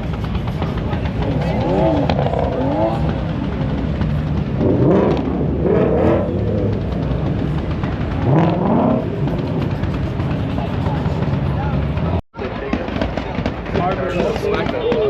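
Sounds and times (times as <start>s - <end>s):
race cars accelerating: 0.2s - 12.2s.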